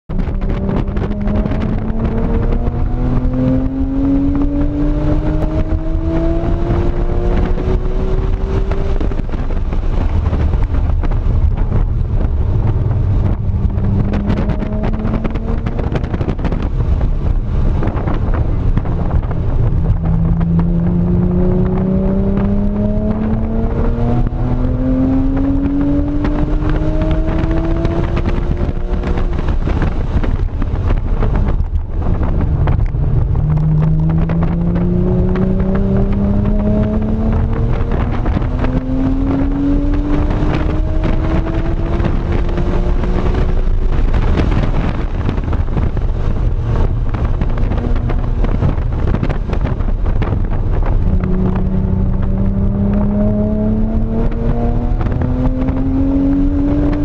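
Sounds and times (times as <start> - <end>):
car engine revving from cabin: 0.3 - 9.0, 12.7 - 16.6, 19.0 - 29.7, 32.7 - 43.6, 51.0 - 57.0.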